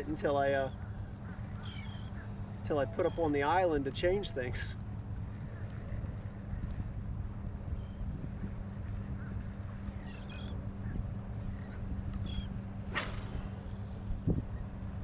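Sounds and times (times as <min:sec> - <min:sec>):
faint bird calls: 0:00.0 - 0:14.7
steady low hum: 0:00.0 - 0:15.0
loud falling whoosh: 0:12.9 - 0:13.9.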